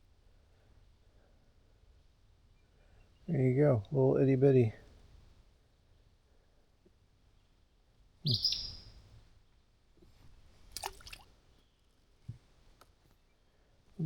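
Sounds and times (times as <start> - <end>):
short bird calls: 8.2 - 9.0.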